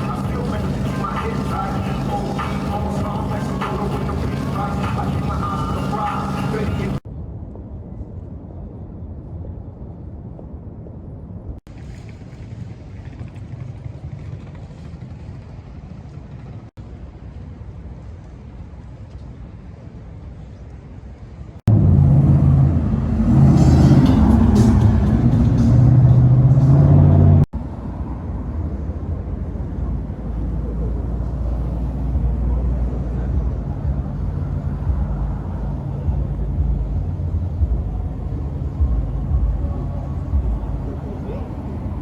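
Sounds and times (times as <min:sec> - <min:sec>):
car engines rumbling: 0:00.0 - 0:07.0, 0:21.4 - 0:42.0.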